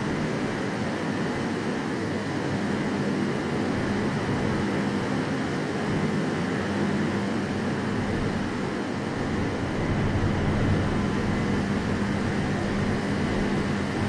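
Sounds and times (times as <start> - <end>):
low even hum: 7.0 - 14.0
train rumbling: 8.3 - 14.0.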